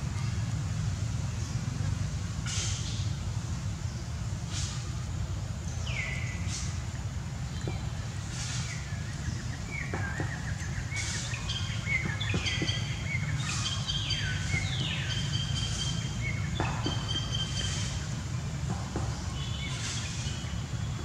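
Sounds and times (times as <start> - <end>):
birds chirping: 5.6 - 21.0.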